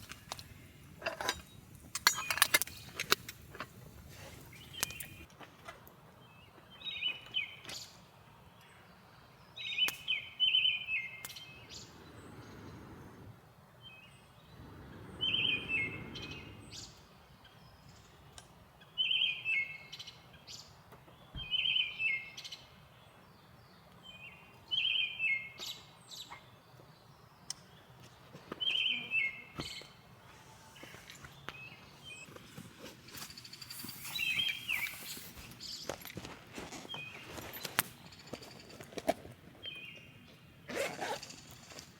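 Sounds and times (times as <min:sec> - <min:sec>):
songbird singing: 0:00.0 - 0:05.3, 0:09.6 - 0:12.6, 0:13.8 - 0:39.0.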